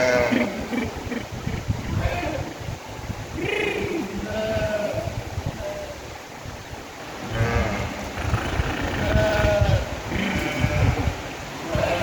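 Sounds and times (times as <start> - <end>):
sheep bleating: 9.0 - 11.1.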